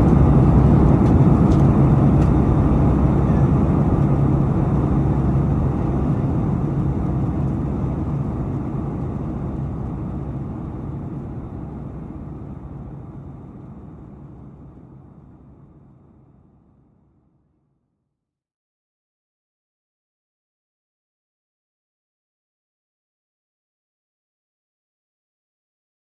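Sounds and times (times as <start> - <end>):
jet engines and airflow rushing: 0.0 - 16.4
low cabin hum: 0.0 - 16.8.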